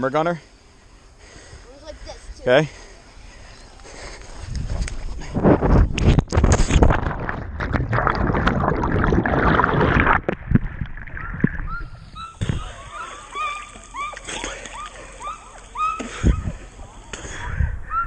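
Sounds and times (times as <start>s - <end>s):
water splashing and churning: 6.1s - 17.5s.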